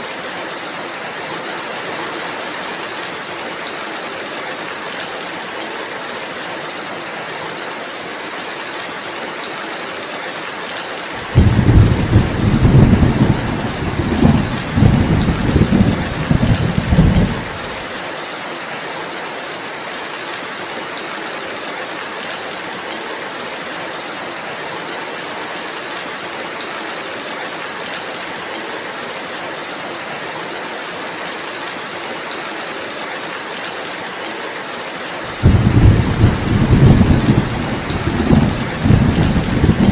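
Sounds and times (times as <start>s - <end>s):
low rumble of thunder: 11.2s - 17.8s, 35.3s - 39.9s
rain hissing: 11.2s - 17.9s, 35.3s - 39.9s.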